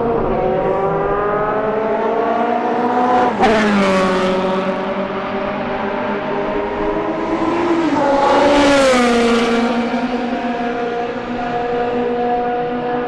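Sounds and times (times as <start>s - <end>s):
racing car engine passing at speed: 0.0s - 13.0s.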